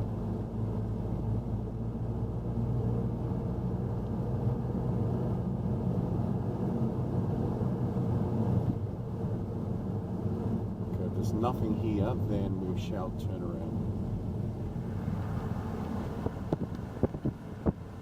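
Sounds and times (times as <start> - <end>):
car engine hum: 0.0 - 18.0
road noise: 0.0 - 18.0.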